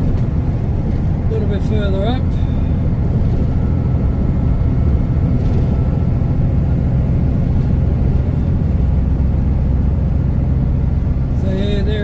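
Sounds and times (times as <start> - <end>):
truck engine and road drone: 0.0 - 12.0.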